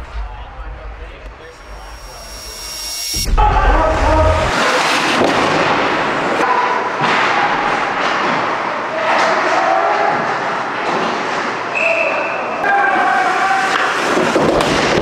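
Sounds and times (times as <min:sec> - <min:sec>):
crowd din: 0:03.2 - 0:10.6.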